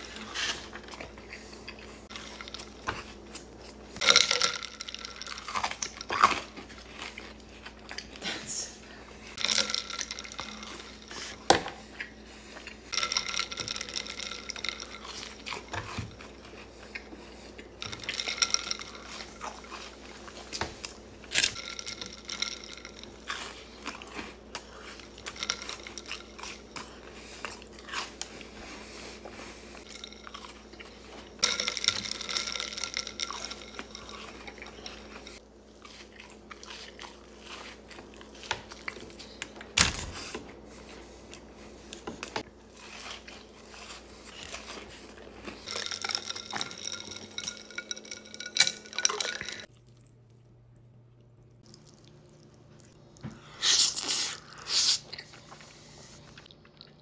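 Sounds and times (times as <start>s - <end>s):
person chewing and crunching food: 0.0s - 57.0s
wet mouth sounds: 53.3s - 55.5s.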